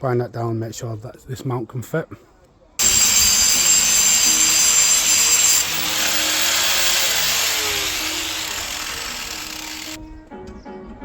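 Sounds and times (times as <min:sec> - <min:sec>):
power grinder grinding metal: 0:02.8 - 0:10.0.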